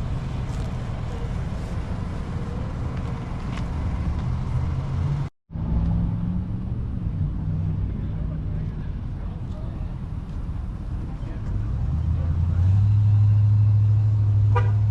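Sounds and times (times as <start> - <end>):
car engine idling: 0.0 - 5.0.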